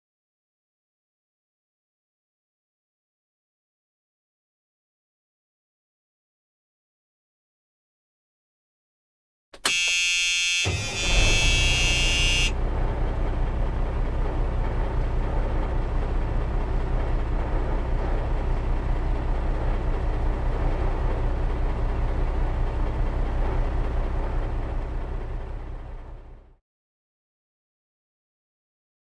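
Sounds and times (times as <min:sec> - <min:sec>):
high horn toot: 0:09.6 - 0:12.6
engine rumbling: 0:10.7 - 0:26.6.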